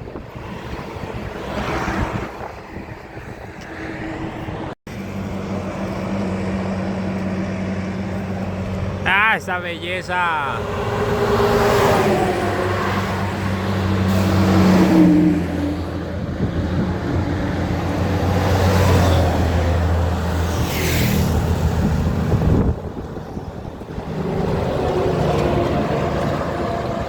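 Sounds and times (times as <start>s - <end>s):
vehicle approaching: 3.7s - 27.0s
diesel truck engine droning: 4.9s - 18.5s.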